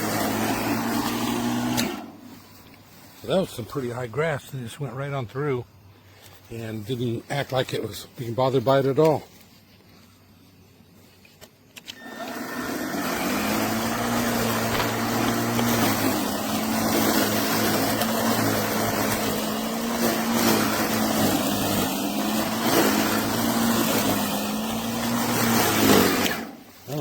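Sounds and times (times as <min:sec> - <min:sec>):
lawn mower motor humming: 0:00.0 - 0:03.3, 0:11.3 - 0:27.0.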